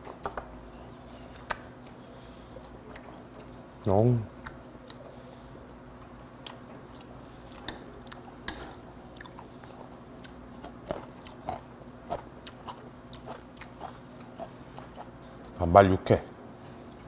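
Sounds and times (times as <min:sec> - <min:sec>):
low room hum: 0:00.0 - 0:17.0
person chewing with mouth smacks: 0:05.9 - 0:15.6.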